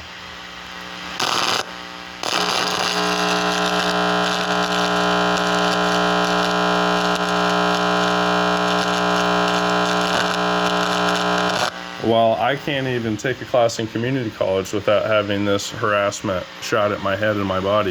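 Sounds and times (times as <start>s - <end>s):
loud electronic buzz with hiss: 0.0s - 13.6s.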